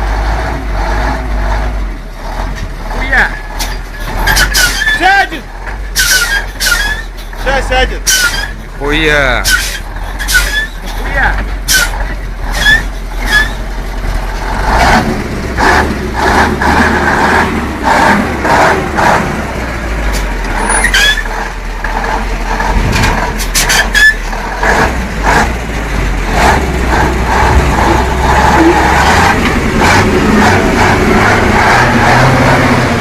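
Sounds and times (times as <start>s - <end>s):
heavy truck engine running: 0.0s - 33.0s
clanks and knocks: 21.8s - 24.0s.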